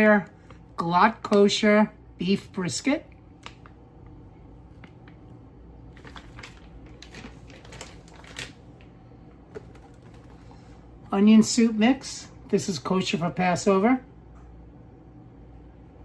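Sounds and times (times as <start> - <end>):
grocery packages handled: 0.1 - 11.3.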